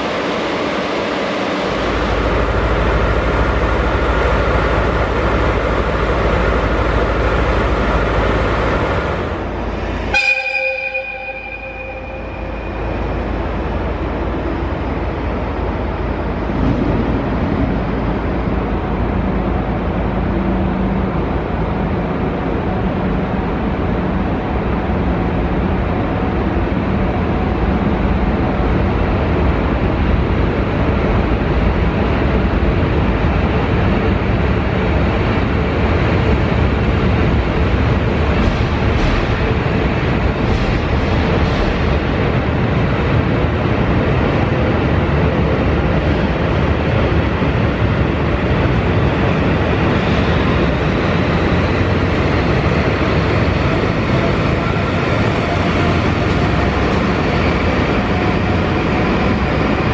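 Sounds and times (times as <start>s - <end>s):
low diesel engine hum: 0.0s - 59.9s
train rolling past: 0.0s - 59.9s
brief pitched tone: 10.2s - 12.9s.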